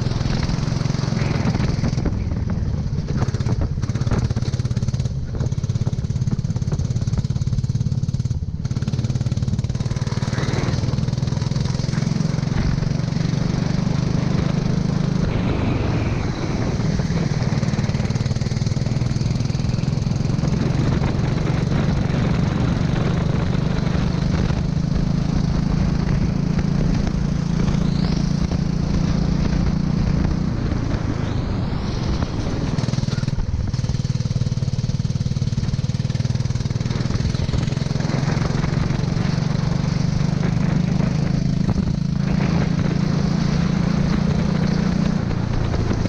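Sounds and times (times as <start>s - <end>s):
go-kart engine running: 0.0s - 46.0s.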